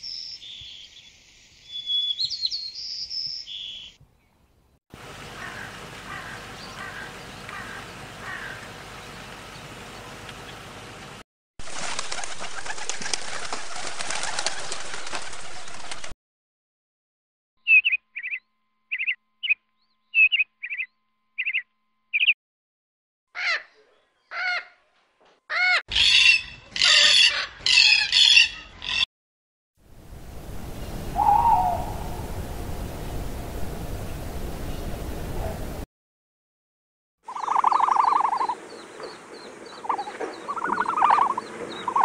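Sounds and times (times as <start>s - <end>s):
peacock calls: 5.0s - 9.1s, 25.5s - 29.0s, 31.0s - 32.4s, 37.3s - 42.0s
lorikeet screeching: 25.5s - 29.0s, 37.3s - 38.6s, 39.8s - 42.0s.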